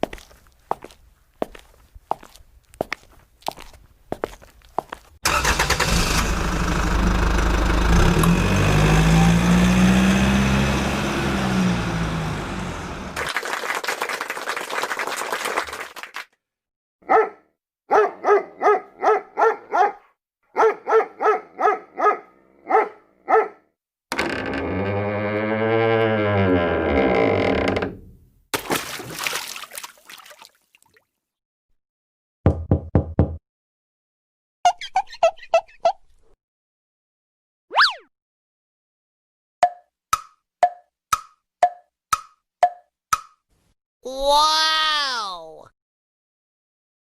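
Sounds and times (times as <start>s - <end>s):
faint footsteps: 0.0s - 5.1s
vehicle engine running loudly: 6.2s - 13.2s
dog barking: 17.0s - 23.7s.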